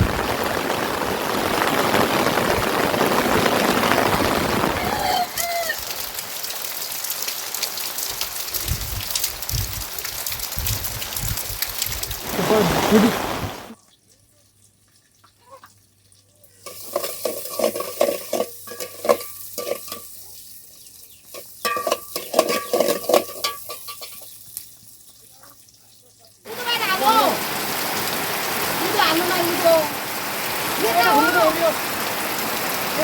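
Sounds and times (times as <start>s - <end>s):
steady rain: 0.0s - 13.8s, 26.4s - 33.0s
rapid scraping and clinking: 16.6s - 20.1s, 21.3s - 24.3s.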